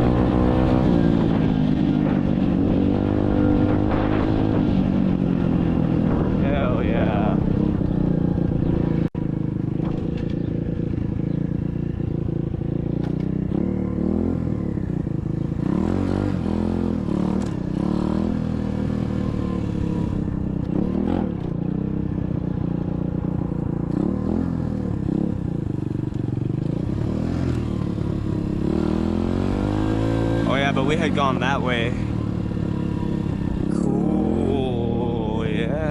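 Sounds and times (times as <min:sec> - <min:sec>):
dirt bike engine running: 0:00.0 - 0:35.9.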